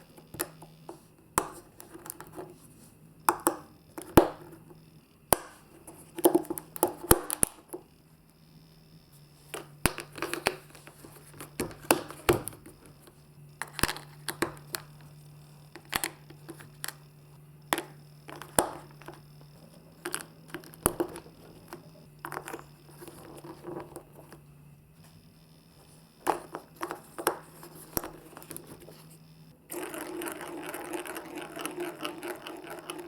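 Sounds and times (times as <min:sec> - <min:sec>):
steady low hum: 0:00.0 - 0:33.0
marbles clicking and clacking: 0:29.7 - 0:33.0.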